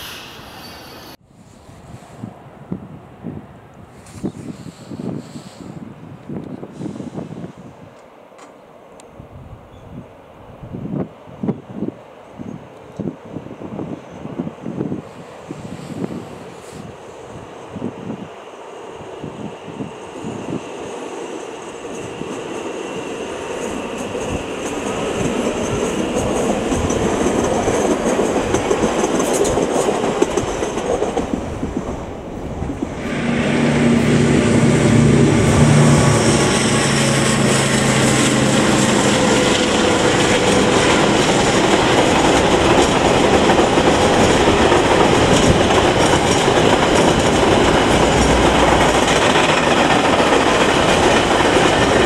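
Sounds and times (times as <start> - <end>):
electric train passing: 0.0 - 3.8, 10.2 - 52.0
diesel locomotive engine drone: 0.0 - 52.0
wagons rumbling and clacking: 39.2 - 52.0.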